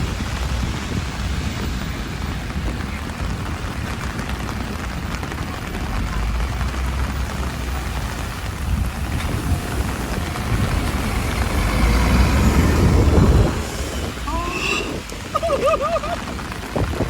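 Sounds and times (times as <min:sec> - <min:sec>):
heavy rain pouring: 0:00.0 - 0:17.0
wind rumbling on microphone: 0:00.0 - 0:17.0.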